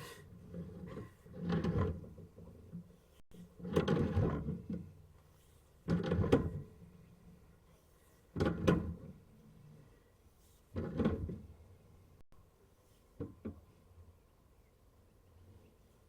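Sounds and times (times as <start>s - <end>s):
cable scraping and knocking in drain pipe: 0.2s - 7.0s, 10.7s - 11.5s.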